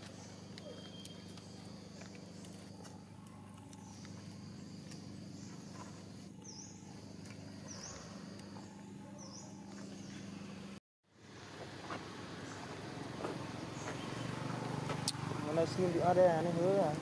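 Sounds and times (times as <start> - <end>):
bird calling: 0.0 - 10.5.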